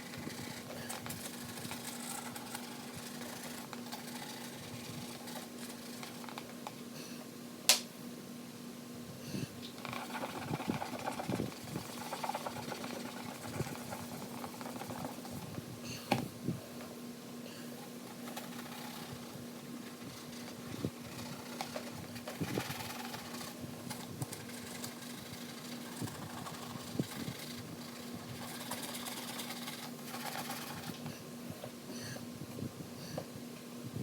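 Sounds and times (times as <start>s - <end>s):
rubbing plastic light cover: 0.0s - 6.6s, 9.8s - 15.5s, 18.1s - 31.0s
steady low hum: 0.0s - 34.0s.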